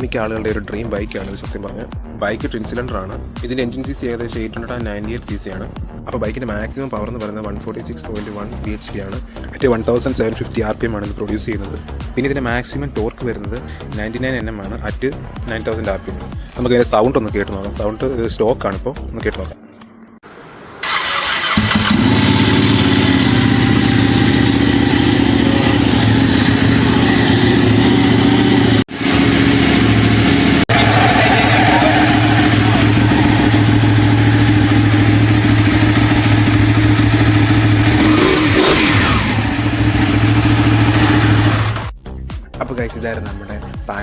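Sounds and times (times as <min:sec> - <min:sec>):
motorcycle engine idling: 0:20.8 - 0:41.9.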